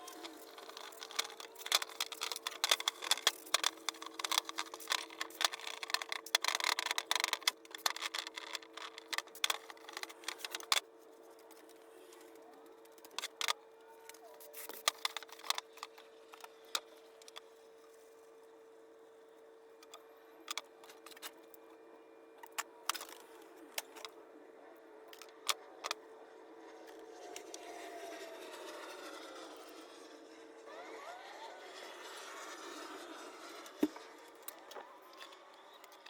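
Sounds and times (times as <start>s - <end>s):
small metal parts clicking: 0.0s - 10.8s.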